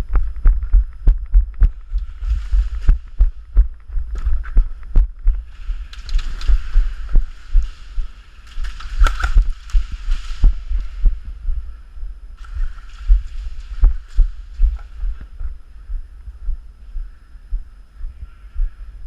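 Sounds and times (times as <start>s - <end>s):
irregular low thumps: 0.0s - 18.8s
rustling hiss: 1.7s - 16.0s.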